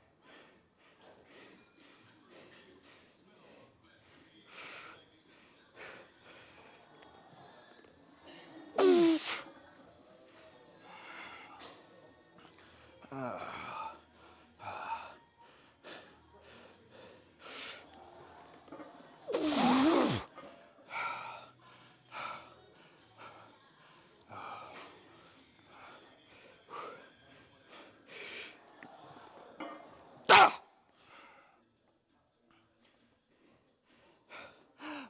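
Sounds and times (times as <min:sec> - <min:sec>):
man grunting: 0:30.3 - 0:30.6.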